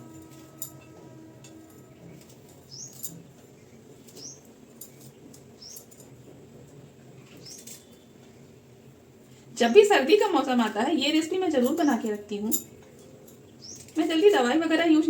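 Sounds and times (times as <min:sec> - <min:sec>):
small bird chirping: 0:02.7 - 0:03.0, 0:04.1 - 0:04.5, 0:13.6 - 0:14.0.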